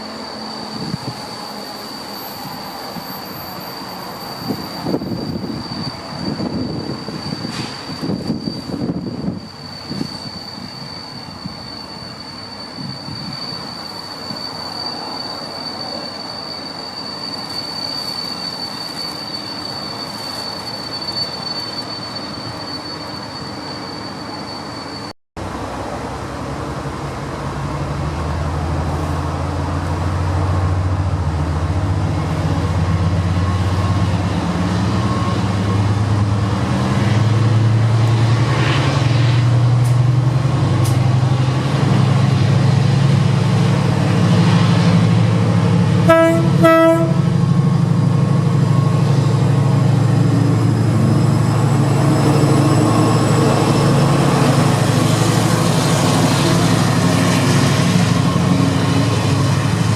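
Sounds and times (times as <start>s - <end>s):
diesel train engine running: 3.6s - 59.9s
train horn toots: 46.0s - 47.5s.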